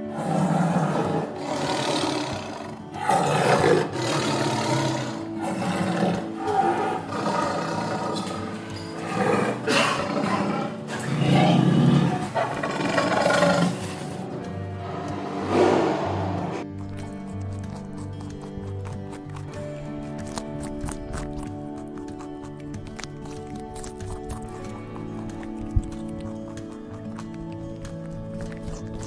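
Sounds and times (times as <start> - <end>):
tiger growling and roaring: 0.0 - 22.4.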